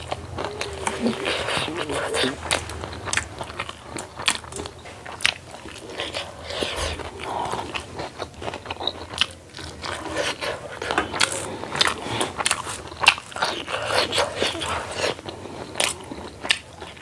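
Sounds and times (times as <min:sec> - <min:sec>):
chewing and crunching food: 0:00.0 - 0:17.0.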